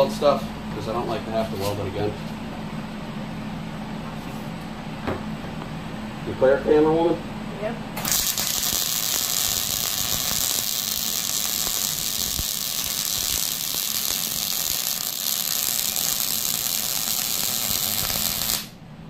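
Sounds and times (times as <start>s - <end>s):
welder arc crackling sizzle: 8.0s - 18.8s.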